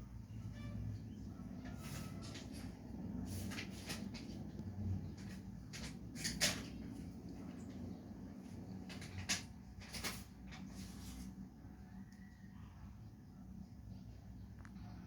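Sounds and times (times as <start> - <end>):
cats tapping and scraping: 1.4 - 12.1.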